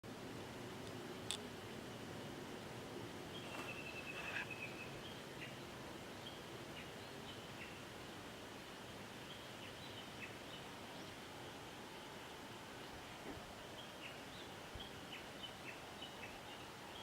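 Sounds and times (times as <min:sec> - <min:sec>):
birds trilling and chirping: 0:03.3 - 0:07.8.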